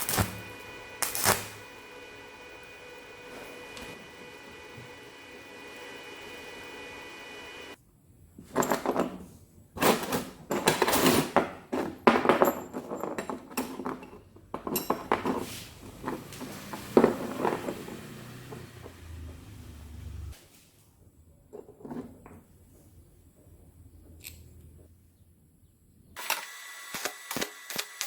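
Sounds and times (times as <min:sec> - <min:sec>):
steady hum: 0:00.0 - 0:07.8
hard objects clattering: 0:08.5 - 0:19.0.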